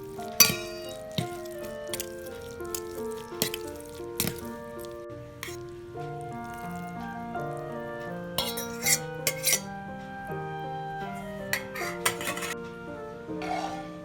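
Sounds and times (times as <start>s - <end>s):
utensils clinking on dishes: 0.0s - 7.0s, 8.4s - 9.8s, 11.1s - 12.6s
background music: 0.0s - 14.0s.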